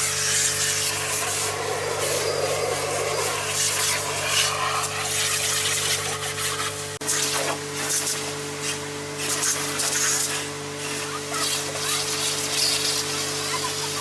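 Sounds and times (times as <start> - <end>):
steady machine hum: 0.0 - 6.1
water rushing: 0.8 - 5.3.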